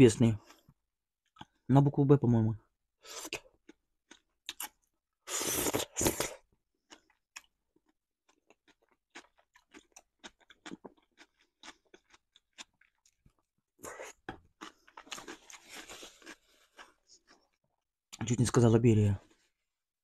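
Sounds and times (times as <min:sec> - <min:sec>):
wet chewing with mouth clicks: 0:03.1 - 0:17.9.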